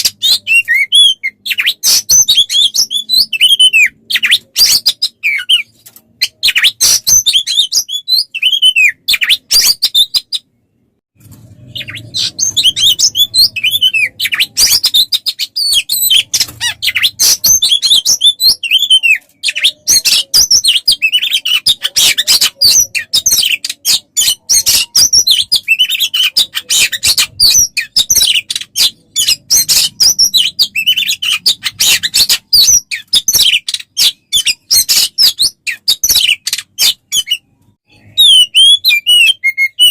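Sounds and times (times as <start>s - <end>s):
songbird chirping and trilling: 0.0s - 39.9s.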